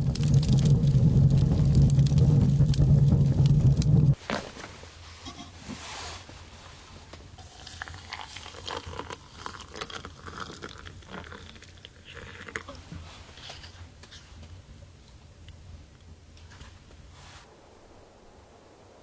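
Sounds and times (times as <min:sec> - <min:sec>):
crunching and crackling material: 0:00.0 - 0:04.6, 0:07.4 - 0:14.3.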